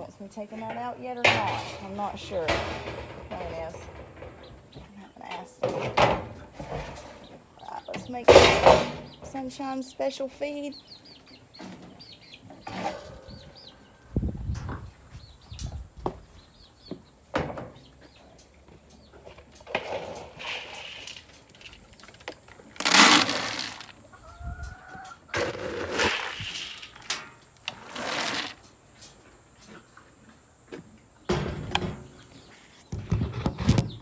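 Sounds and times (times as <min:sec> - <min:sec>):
knocks and clatters: 0:00.6 - 0:04.9
dry feed rattling as poured: 0:20.4 - 0:21.8, 0:22.8 - 0:23.9, 0:25.4 - 0:27.1, 0:27.7 - 0:28.6.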